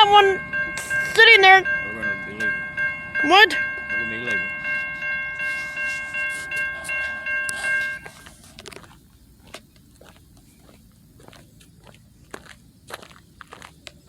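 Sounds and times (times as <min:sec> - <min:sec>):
railroad crossing bell ringing: 0:00.0 - 0:08.5.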